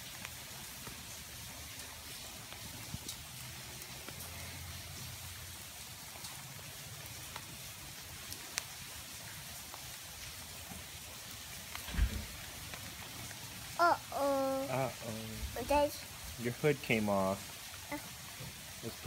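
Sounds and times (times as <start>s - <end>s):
sharp tick of raindrop: 0.0s - 13.8s
steady rain falling: 0.0s - 19.0s.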